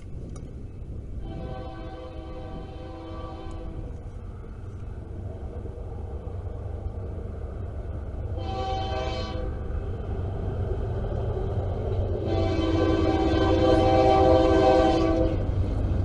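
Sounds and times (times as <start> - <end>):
diesel locomotive engine rumble: 0.0 - 16.0
air horn blast: 1.2 - 3.9, 8.4 - 9.6, 12.2 - 15.4.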